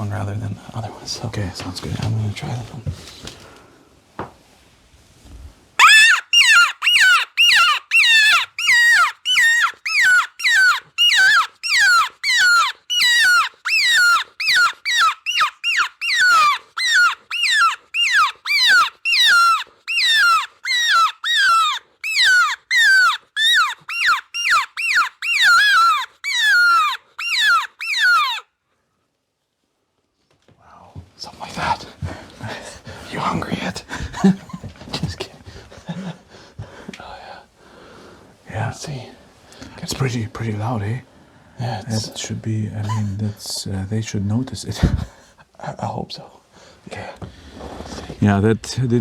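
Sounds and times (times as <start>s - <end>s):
predator call high squeals: 5.8s - 28.5s.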